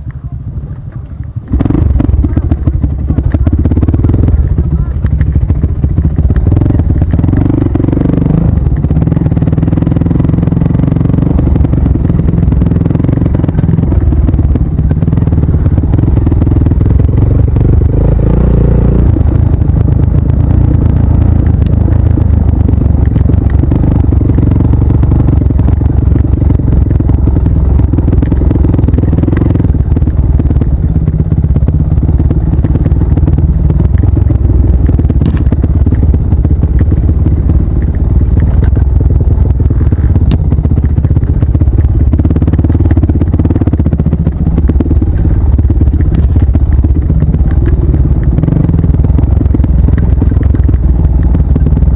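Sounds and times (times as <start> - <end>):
motorcycle engine revving unevenly: 0.0 - 51.9.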